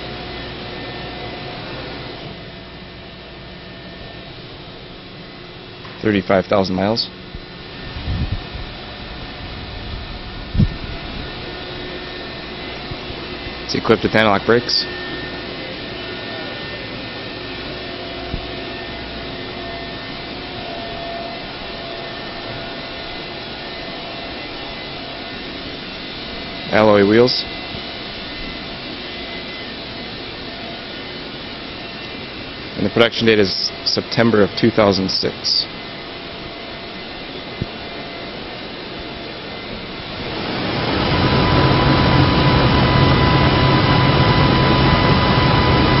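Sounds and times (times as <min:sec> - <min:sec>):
steady even noise: 0:39.4 - 0:46.0.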